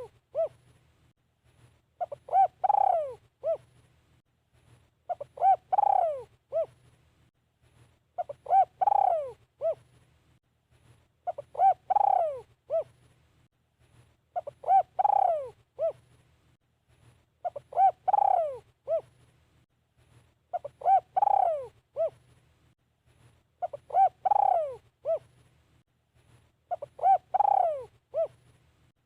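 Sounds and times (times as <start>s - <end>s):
dove cooing: 0.0s - 0.6s, 2.0s - 3.7s, 5.1s - 6.8s, 8.2s - 9.9s, 11.2s - 13.0s, 14.4s - 16.0s, 17.4s - 19.1s, 20.5s - 22.2s, 23.6s - 25.3s, 26.7s - 28.4s.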